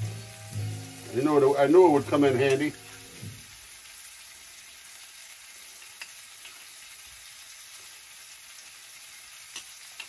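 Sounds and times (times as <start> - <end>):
tomatoes sizzling in skillet: 0.0 - 10.0
spoon clicking against pan: 9.5 - 10.0.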